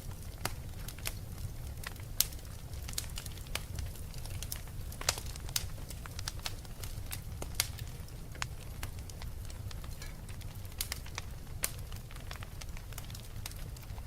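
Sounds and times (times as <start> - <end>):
low fire rumble: 0.0 - 14.0
wood fire crackling: 0.0 - 14.0.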